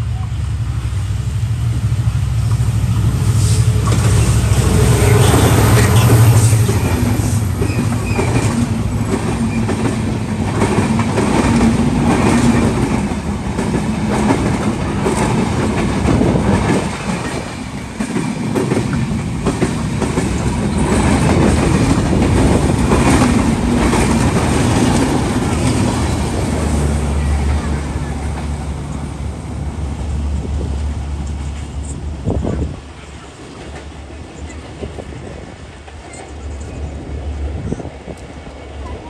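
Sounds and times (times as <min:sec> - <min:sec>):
train wheels clattering over rail joints: 0:03.4 - 0:31.8.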